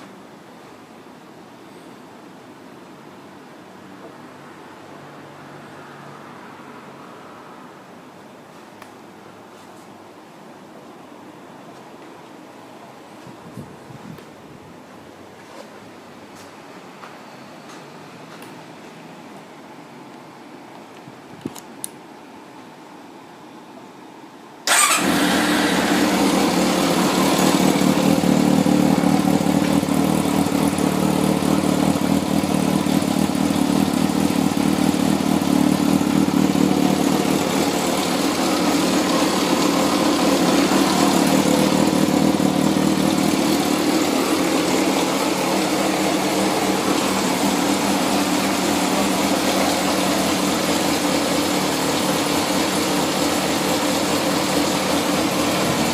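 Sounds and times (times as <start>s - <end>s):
motorcycle engine idling: 24.7s - 55.9s.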